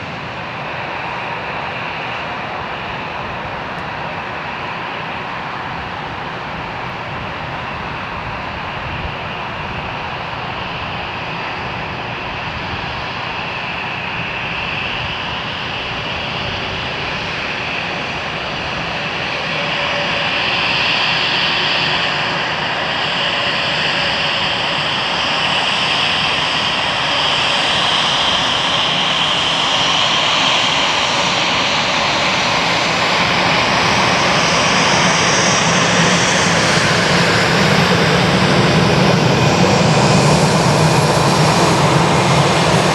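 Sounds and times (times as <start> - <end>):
jet engines rushing and whining: 0.0 - 42.9.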